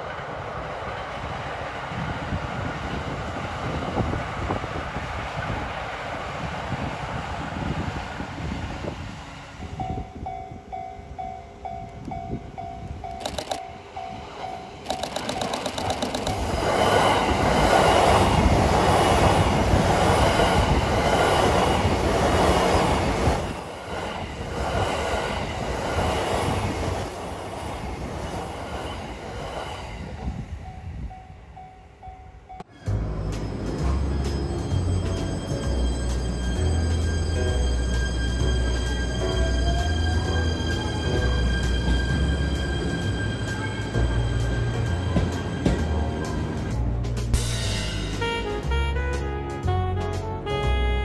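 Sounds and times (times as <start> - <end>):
train passing on rails: 0.0 - 50.9
wheel clatter over rail joints: 14.8 - 16.6.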